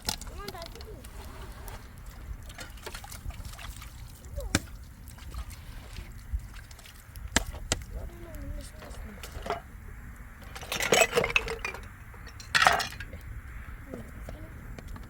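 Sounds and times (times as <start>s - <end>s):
pots and dishes clinking: 8.8s - 9.7s, 10.4s - 13.2s
ringing clatter of dishes: 10.5s - 13.2s.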